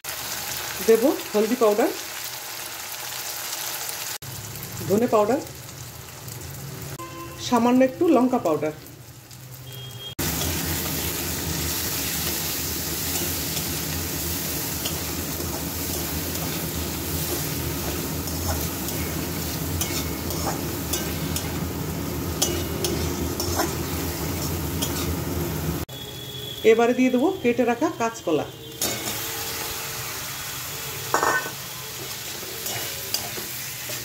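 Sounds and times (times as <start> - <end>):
food sizzling in oil: 0.0 - 34.0
metal spatula scraping pan: 10.2 - 21.6, 22.4 - 25.2, 28.8 - 29.8, 31.1 - 34.0.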